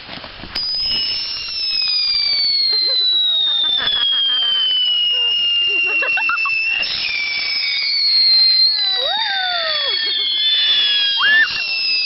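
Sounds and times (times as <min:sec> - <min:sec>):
firework crackle: 0:00.0 - 0:12.0
whistling fireworks: 0:00.0 - 0:12.0.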